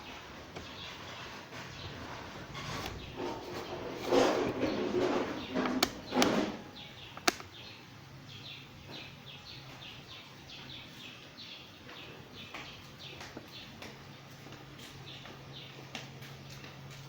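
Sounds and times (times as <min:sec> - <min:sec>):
rustling scraping noises: 0:00.0 - 0:07.4
small bird chirping: 0:04.6 - 0:16.7
sharp click: 0:07.2 - 0:07.5.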